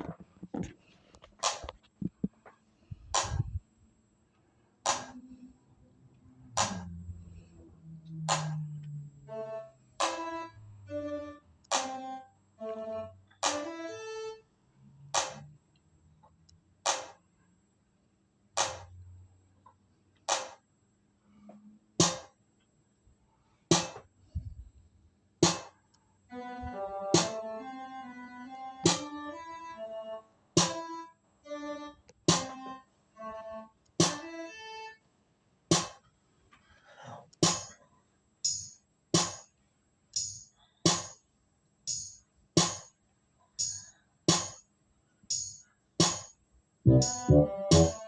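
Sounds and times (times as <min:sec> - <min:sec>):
clap-like beat hits: 0:01.4 - 0:01.7, 0:03.2 - 0:03.5, 0:04.9 - 0:05.2, 0:06.6 - 0:06.9, 0:08.3 - 0:08.6, 0:11.7 - 0:12.0, 0:15.2 - 0:15.4, 0:16.9 - 0:17.2, 0:18.6 - 0:18.9, 0:20.3 - 0:20.6, 0:22.0 - 0:22.3, 0:23.7 - 0:24.0, 0:25.4 - 0:25.7, 0:27.2 - 0:27.4, 0:28.9 - 0:29.1, 0:30.6 - 0:30.8, 0:32.3 - 0:32.5, 0:34.0 - 0:34.2, 0:35.7 - 0:36.0, 0:37.4 - 0:37.7, 0:39.2 - 0:39.4, 0:46.9 - 0:48.0
low kick drum: 0:03.0 - 0:03.6, 0:46.9 - 0:48.0
tambourine-like drum machine hits: 0:16.9 - 0:17.2, 0:22.0 - 0:22.4, 0:23.7 - 0:24.0, 0:25.4 - 0:25.8, 0:35.7 - 0:36.0, 0:37.4 - 0:37.8, 0:38.4 - 0:39.5, 0:40.2 - 0:41.2, 0:41.9 - 0:42.9, 0:43.6 - 0:44.6, 0:45.3 - 0:48.0
held synth chords: 0:46.9 - 0:48.0
low bass thud: 0:46.9 - 0:48.0.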